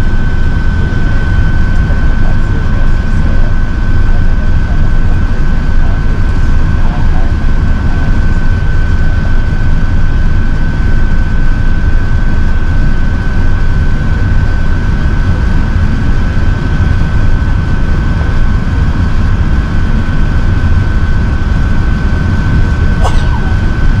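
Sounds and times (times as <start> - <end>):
aircraft cabin engine rumble: 0.0 - 24.0
thin high whine: 22.9 - 24.0.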